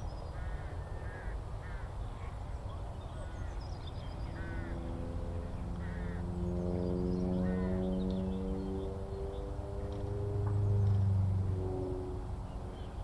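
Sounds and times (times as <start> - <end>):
low outdoor rumble: 0.0 - 13.0
crows cawing: 0.4 - 2.0, 4.4 - 4.8, 5.8 - 6.2, 7.4 - 7.7
steady multi-pitch drone: 4.3 - 13.0.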